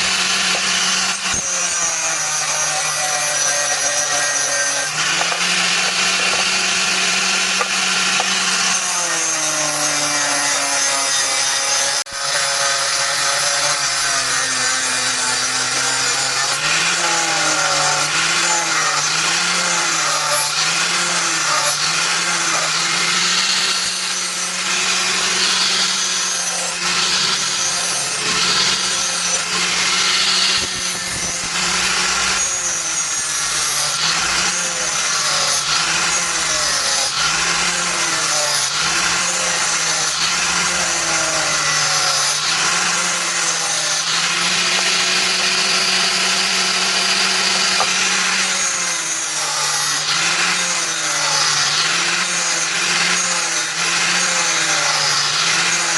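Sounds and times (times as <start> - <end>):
power tool motor running: 0.0 - 55.9.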